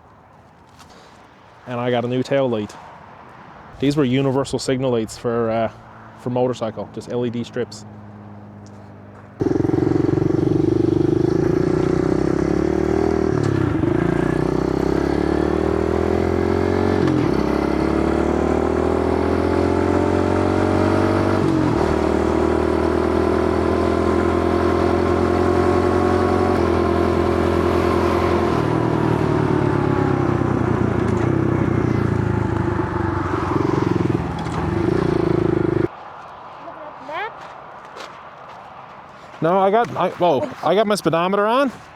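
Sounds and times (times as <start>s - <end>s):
small motorbike engine revving: 9.4s - 35.9s.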